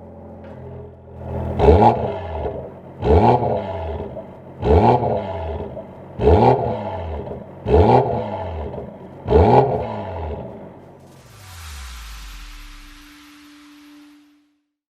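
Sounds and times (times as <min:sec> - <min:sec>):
car engine throttle blips: 0:00.2 - 0:11.2.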